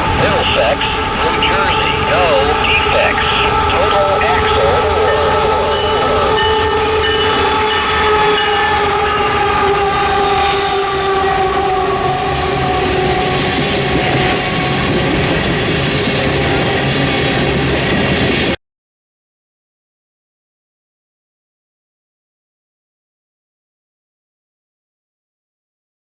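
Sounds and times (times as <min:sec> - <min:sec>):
locomotive air horn: 0:00.0 - 0:17.7
train rumbling on rails: 0:00.0 - 0:18.6.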